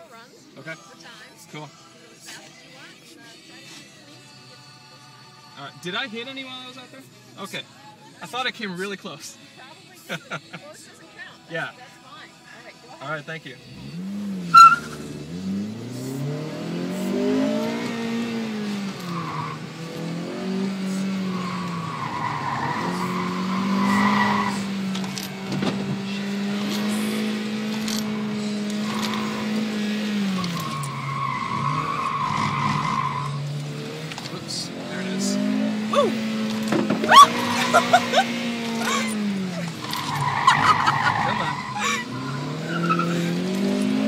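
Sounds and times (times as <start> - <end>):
car engine revving hard: 13.7 - 44.0
tyres squealing: 14.4 - 15.1, 17.3 - 34.3, 35.0 - 44.0.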